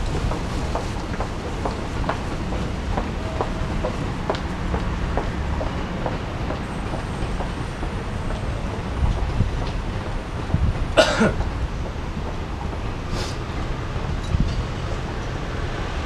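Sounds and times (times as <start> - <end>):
train rumbling past: 0.0 - 16.0.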